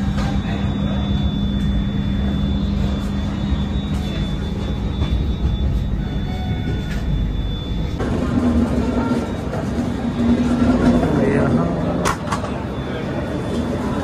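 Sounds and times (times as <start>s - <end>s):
low hum: 0.0s - 11.8s
passenger train coach rumbling: 0.0s - 14.0s.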